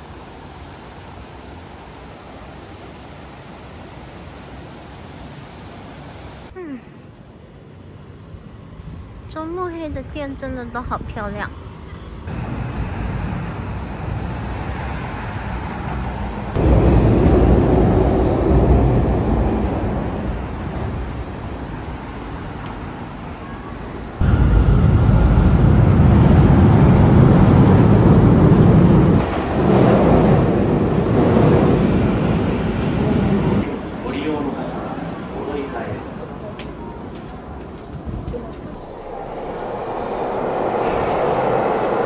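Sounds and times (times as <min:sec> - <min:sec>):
trains rumbling past: 0:11.5 - 0:42.0
road traffic: 0:38.7 - 0:42.0.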